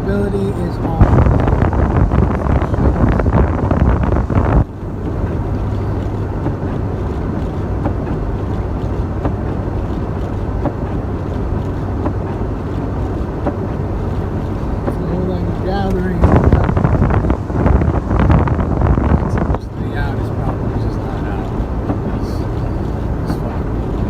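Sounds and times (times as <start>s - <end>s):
road noise: 0.0s - 24.0s
truck engine hum: 0.0s - 24.0s
wind gusting on microphone: 0.0s - 24.0s.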